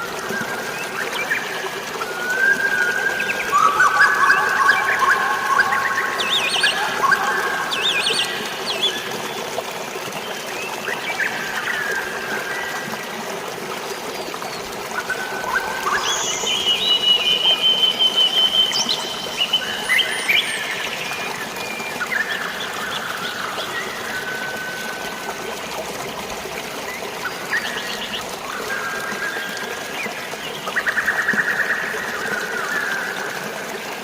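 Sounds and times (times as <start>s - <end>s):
drizzling rain: 0.0s - 34.0s
flowing water: 0.0s - 34.0s
birds whistling and calling: 0.3s - 9.2s, 15.1s - 24.8s.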